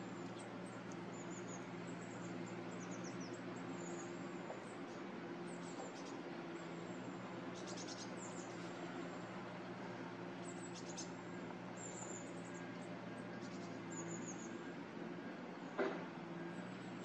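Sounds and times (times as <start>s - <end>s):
small birds chirping: 0.0s - 17.0s
steady low hum: 0.0s - 17.0s.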